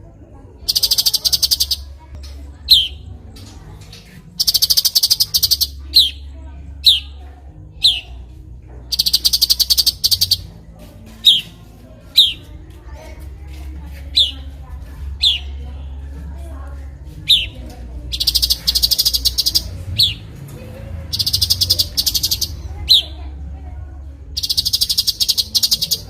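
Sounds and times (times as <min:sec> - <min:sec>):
bird chattering trill: 0:00.6 - 0:07.2, 0:07.8 - 0:08.2, 0:08.9 - 0:10.5, 0:11.2 - 0:11.6, 0:12.2 - 0:12.5, 0:14.1 - 0:14.5, 0:15.1 - 0:15.6, 0:17.2 - 0:20.4, 0:21.0 - 0:23.2, 0:24.3 - 0:26.0
songbird calling: 0:00.6 - 0:07.2, 0:07.8 - 0:08.3, 0:08.9 - 0:10.6, 0:11.2 - 0:12.5, 0:14.1 - 0:14.5, 0:15.1 - 0:15.6, 0:17.2 - 0:20.4, 0:21.0 - 0:23.3, 0:24.3 - 0:26.0.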